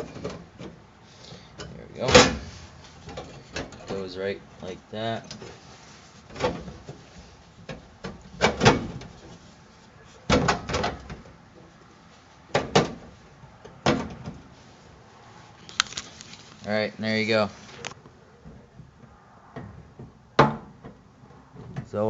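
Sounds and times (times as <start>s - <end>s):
metal panel clunking and rattling: 1.6s - 4.1s, 6.3s - 7.0s, 7.7s - 9.3s, 10.3s - 11.4s.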